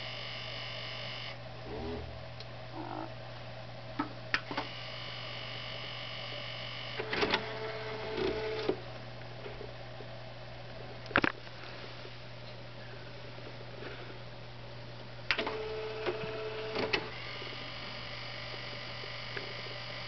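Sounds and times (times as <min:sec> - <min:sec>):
electronic receiver low buzz: 0:00.0 - 0:09.1, 0:15.2 - 0:20.0.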